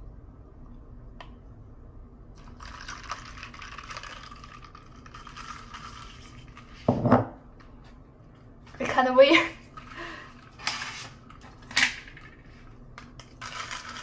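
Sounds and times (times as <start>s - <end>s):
drink pouring into cup: 2.4s - 6.9s.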